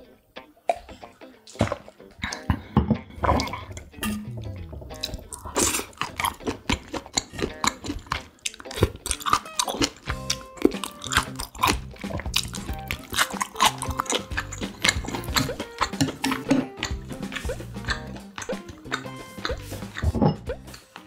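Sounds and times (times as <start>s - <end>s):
background music with held notes: 0.0s - 21.0s
wet chewing and mouth smacks: 4.9s - 20.8s.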